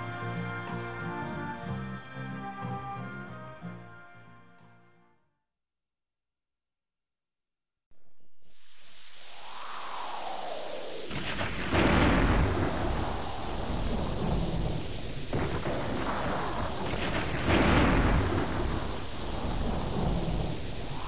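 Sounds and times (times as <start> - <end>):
deep rumbling noise: 8.6 - 21.0.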